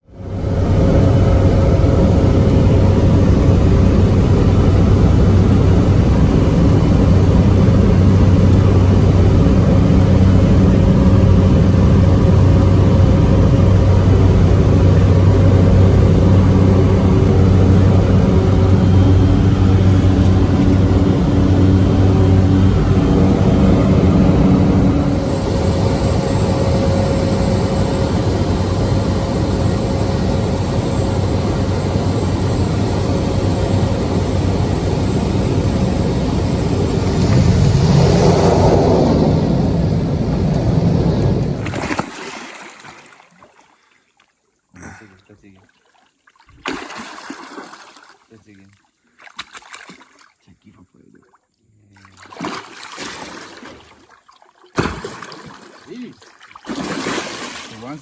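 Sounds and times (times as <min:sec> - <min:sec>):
engine drone: 0:00.0 - 0:42.2.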